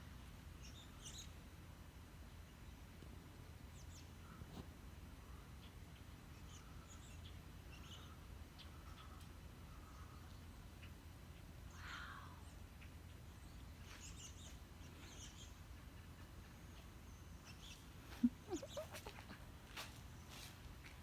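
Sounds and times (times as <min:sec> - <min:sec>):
flock of birds calling: 0:17.6 - 0:19.4.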